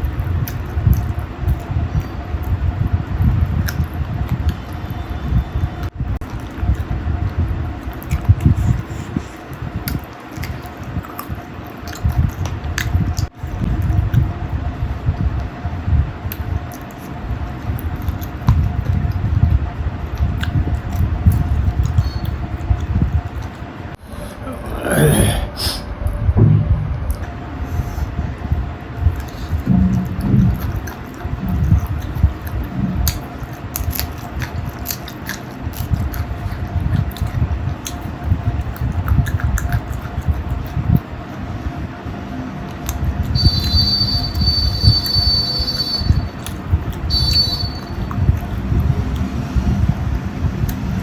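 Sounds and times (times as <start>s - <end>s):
wet mouth clicks and smacks: 0.0s - 14.4s, 16.2s - 19.4s, 20.2s - 23.7s, 29.0s - 41.1s, 42.7s - 51.0s
chewing food: 0.0s - 23.9s, 27.9s - 51.0s
faint steady hum: 0.0s - 51.0s.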